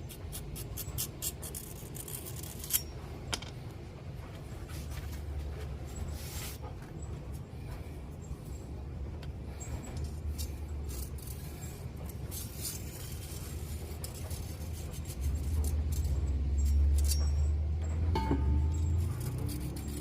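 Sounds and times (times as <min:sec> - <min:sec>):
sharpening stone scraping a blade: 0:00.1 - 0:02.9, 0:10.3 - 0:17.5, 0:18.7 - 0:20.0.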